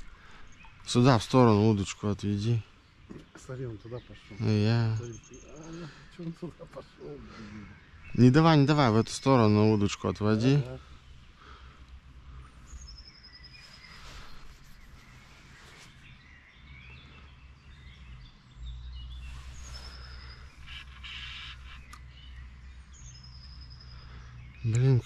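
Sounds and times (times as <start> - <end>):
songbird trilling: 16.1 - 25.0.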